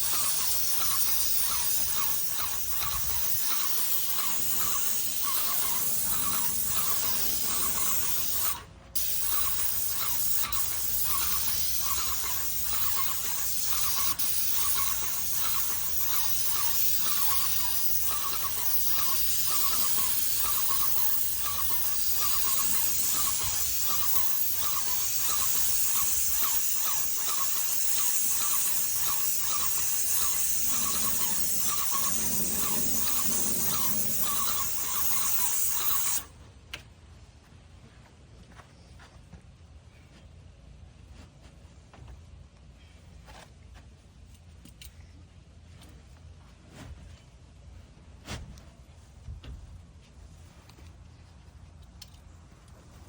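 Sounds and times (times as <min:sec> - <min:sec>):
paint sprayer hissing: 0:00.0 - 0:36.3
rhythmic squeak: 0:00.0 - 0:36.3.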